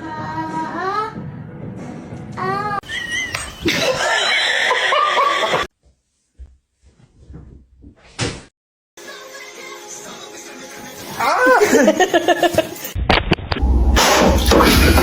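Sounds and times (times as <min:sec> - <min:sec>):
people laughing loudly: 0:02.9 - 0:05.7, 0:11.5 - 0:12.8.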